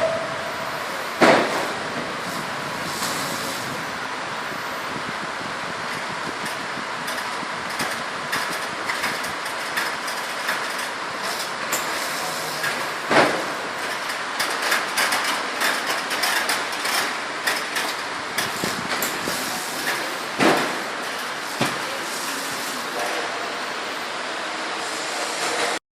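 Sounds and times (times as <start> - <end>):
loud clanks: 7.1 - 23.2.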